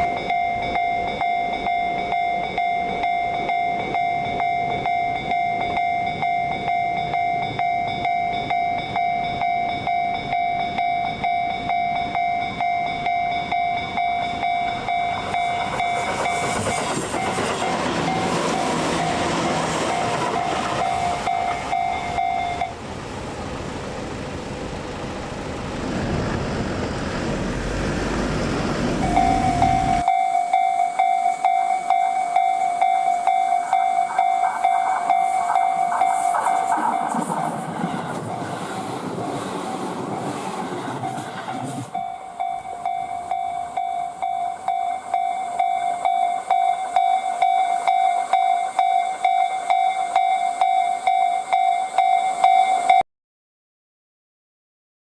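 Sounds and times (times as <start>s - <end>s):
level crossing alarm ringing: 0.0s - 22.8s, 29.0s - 37.2s, 41.9s - 53.0s
deep rumble of train: 0.0s - 53.0s
train wheels clattering: 13.4s - 22.6s.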